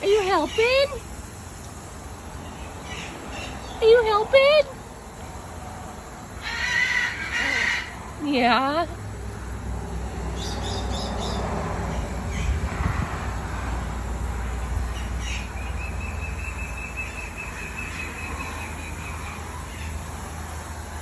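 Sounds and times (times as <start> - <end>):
outdoor background noise: 0.0 - 21.0
bird chirping: 2.3 - 4.6, 10.3 - 12.7, 14.9 - 20.1.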